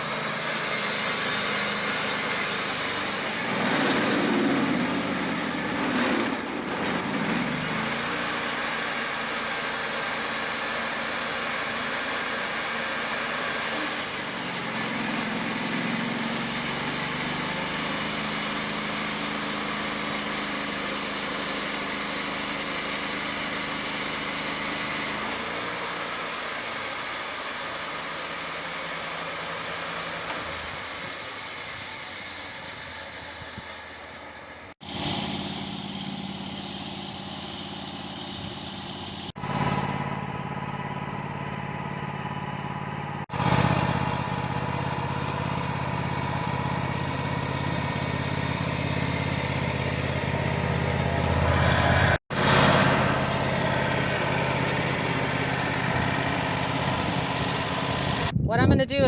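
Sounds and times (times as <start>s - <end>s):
band blade hissing through log: 0.0s - 37.9s
sawmill engine running: 0.0s - 58.4s.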